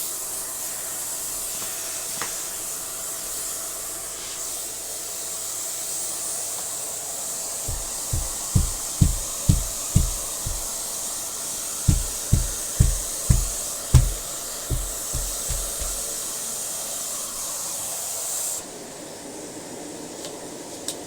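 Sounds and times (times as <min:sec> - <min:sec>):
music drum beats: 0:07.7 - 0:10.7, 0:11.9 - 0:16.0.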